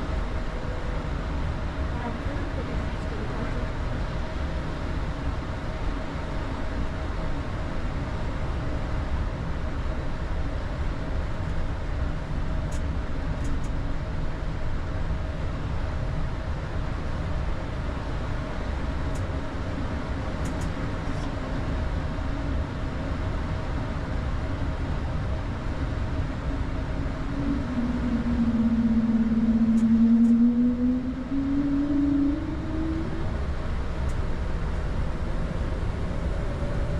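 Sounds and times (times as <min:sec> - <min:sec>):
aircraft cockpit rumble: 0:00.0 - 0:36.9
hum rising in pitch: 0:25.0 - 0:36.9.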